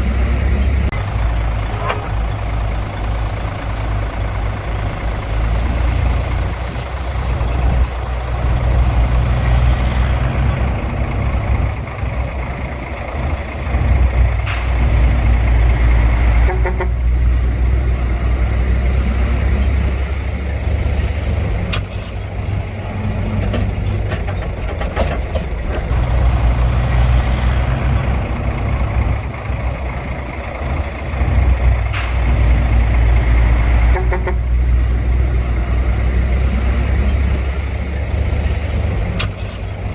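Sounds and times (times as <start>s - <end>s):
heavy diesel engine running: 0.0s - 39.9s
sharp metal clanks: 21.7s - 22.4s, 39.1s - 39.9s.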